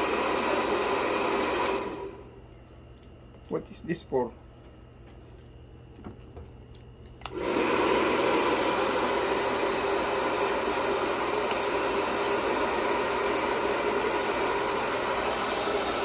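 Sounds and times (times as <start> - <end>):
hair dryer blowing: 0.0 - 2.4, 7.2 - 16.0
hair dryer switch click: 7.2 - 7.6, 11.4 - 11.8.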